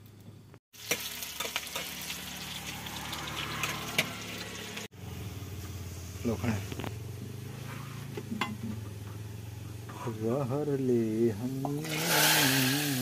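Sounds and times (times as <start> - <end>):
food sizzling in hot oil: 0.7 - 4.9, 11.7 - 13.0.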